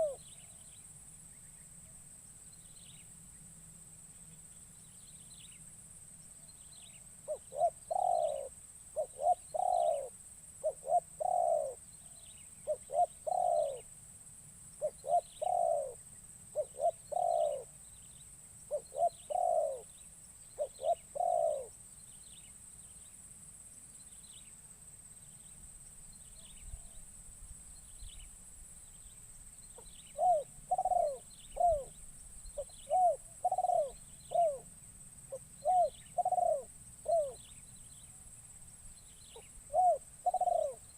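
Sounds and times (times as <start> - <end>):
dove cooing: 0.0 - 0.6, 7.3 - 11.8, 12.6 - 13.9, 14.8 - 17.8, 18.7 - 19.9, 20.6 - 21.8, 29.8 - 34.7, 35.3 - 37.6, 39.3 - 40.9
high insect drone: 0.0 - 40.9.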